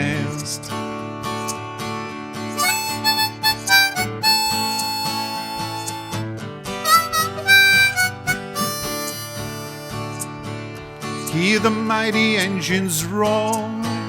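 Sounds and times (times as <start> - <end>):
strummed acoustic guitar: 0.0 - 14.0
harmonica melody: 2.6 - 10.4.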